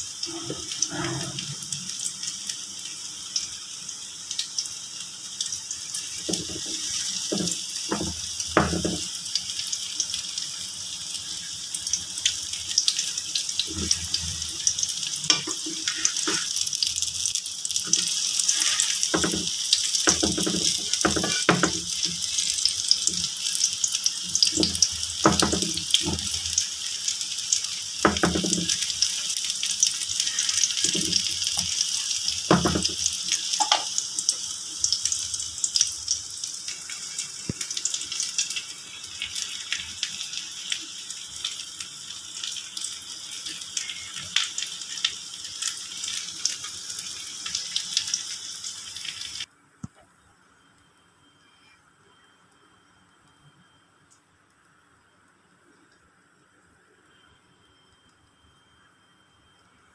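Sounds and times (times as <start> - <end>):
pancake sizzling in oil: 0.0 - 49.5
wooden spatula knocking pan: 6.3 - 9.1, 19.1 - 19.5, 20.1 - 21.9, 24.6 - 26.2, 28.0 - 28.7, 32.5 - 33.0.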